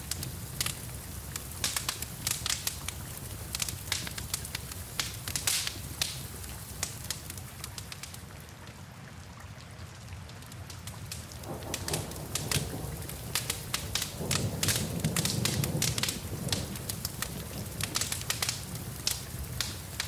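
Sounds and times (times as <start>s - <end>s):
rain hissing: 0.0s - 8.4s, 10.8s - 20.0s
wood fire crackling: 0.0s - 8.5s, 10.0s - 20.0s.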